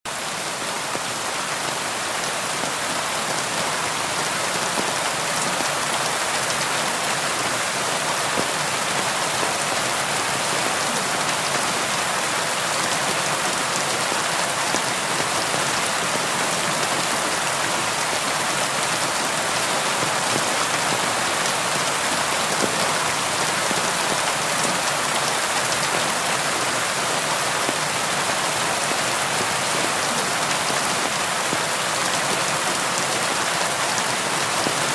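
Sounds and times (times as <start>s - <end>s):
steady rain falling: 0.1s - 34.9s.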